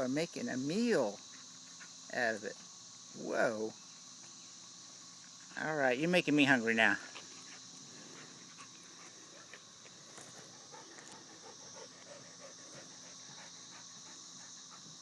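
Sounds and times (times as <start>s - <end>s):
cicada chorus drone: 0.0s - 15.0s.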